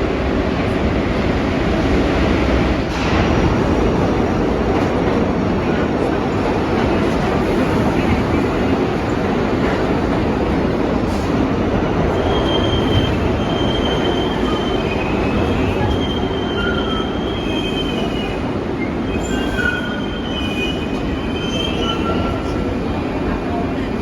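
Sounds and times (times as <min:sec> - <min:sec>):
subway train rumbling: 0:00.0 - 0:24.0
train wheels squealing: 0:12.1 - 0:22.7.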